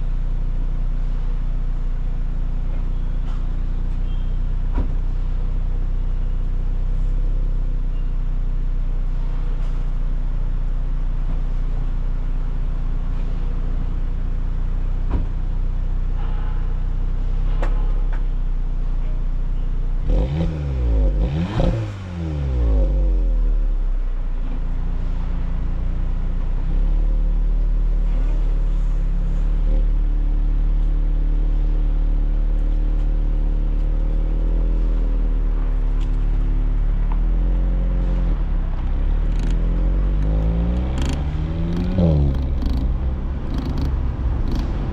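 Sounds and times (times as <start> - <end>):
car engine idling: 0.0 - 44.9
engine throttle blips: 38.0 - 44.9.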